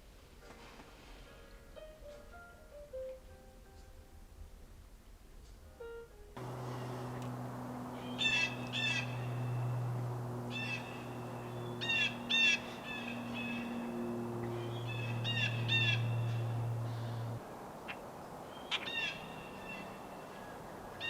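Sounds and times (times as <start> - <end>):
harsh bird calls: 6.4 - 17.4
steady low hum: 6.4 - 17.4.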